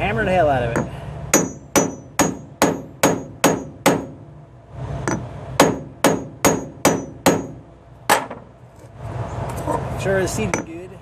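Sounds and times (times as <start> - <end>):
hammer striking metal tool: 0.8 - 4.1, 5.1 - 8.4.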